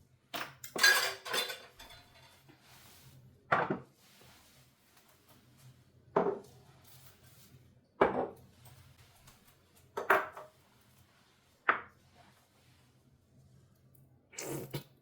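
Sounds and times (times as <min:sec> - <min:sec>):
dishes clattering: 0:00.4 - 0:02.4, 0:10.0 - 0:10.5.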